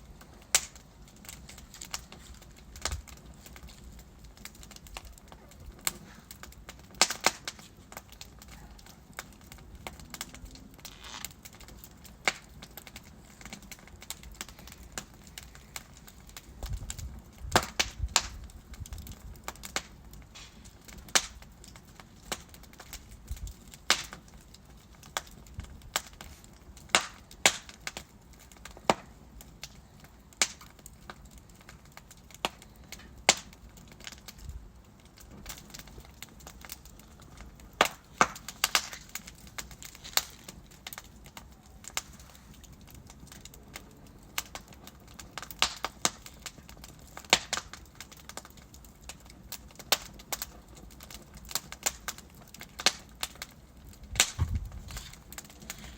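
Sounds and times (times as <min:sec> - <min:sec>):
fire hissing: 0:00.0 - 0:24.2, 0:35.4 - 0:43.4, 0:54.0 - 0:55.9
fire crackling and popping: 0:00.0 - 0:55.9.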